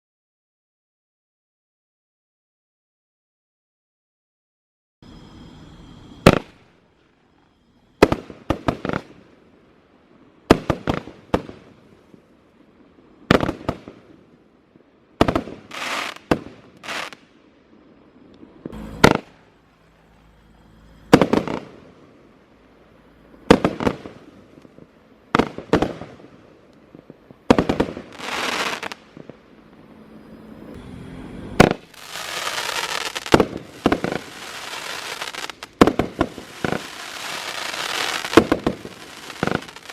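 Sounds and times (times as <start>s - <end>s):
fireworks bangs: 6.2s - 6.6s, 8.0s - 9.4s, 10.4s - 12.3s, 13.2s - 14.4s, 15.2s - 39.9s
fireworks crackling: 6.2s - 39.9s.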